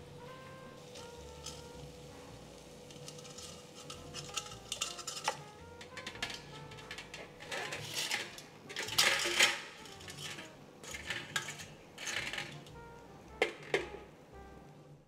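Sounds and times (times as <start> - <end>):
metal utensils clinking on dishes: 0.9 - 1.7, 2.8 - 12.8, 13.4 - 14.0.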